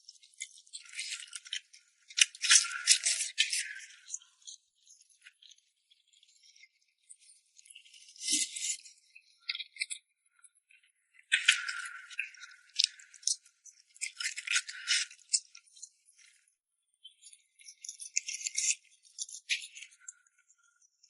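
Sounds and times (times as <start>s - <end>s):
wet clicky eating noises: 11.3s - 16.2s.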